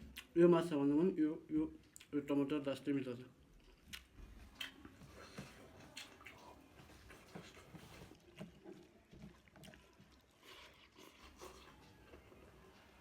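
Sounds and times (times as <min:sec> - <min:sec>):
chewing and mouth smacking: 0:01.8 - 0:02.2, 0:03.4 - 0:12.2.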